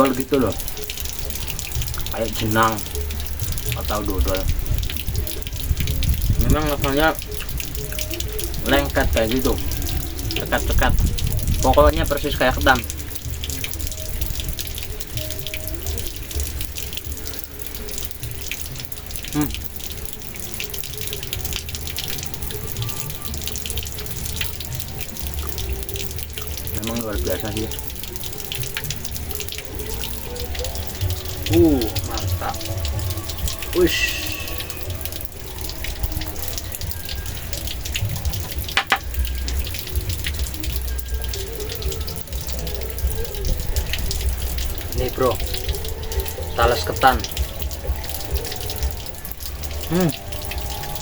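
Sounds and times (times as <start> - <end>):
wind gusting against microphone: 0.0 - 17.4
water running and splashing: 0.0 - 51.0.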